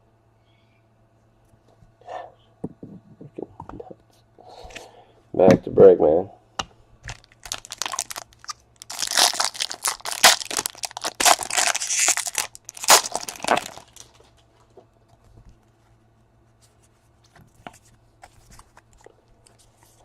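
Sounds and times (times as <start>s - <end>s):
wrapper tearing and crinkling: 7.1s - 14.2s.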